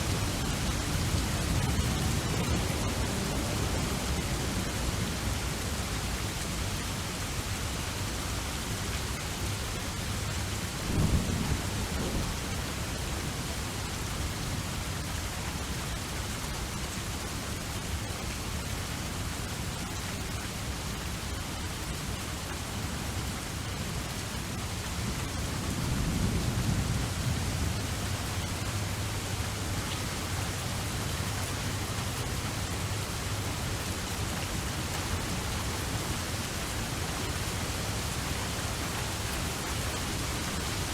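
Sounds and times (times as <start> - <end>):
steady rain: 0.0 - 40.9
thunder rolling: 10.9 - 12.6.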